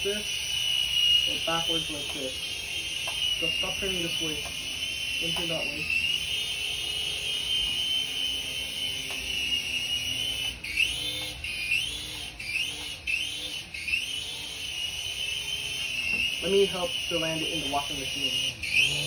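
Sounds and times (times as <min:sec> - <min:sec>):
toy helicopter motor whine: 0:00.0 - 0:19.0.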